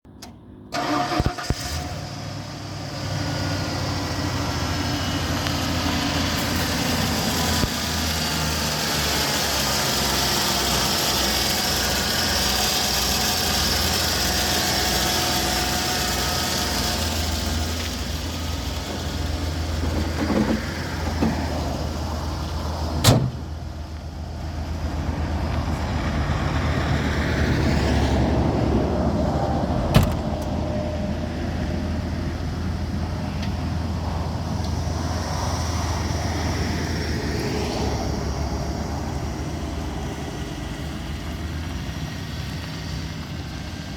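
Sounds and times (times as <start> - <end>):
pickup engine idling: 2.0 - 26.0.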